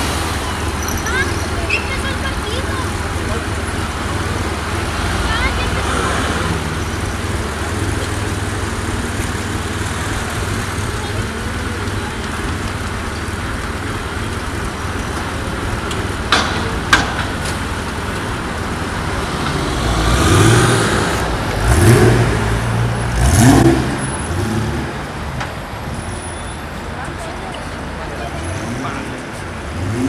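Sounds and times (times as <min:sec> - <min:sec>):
car engine revving: 0:00.0 - 0:25.8, 0:27.8 - 0:30.0
street traffic: 0:00.0 - 0:30.0.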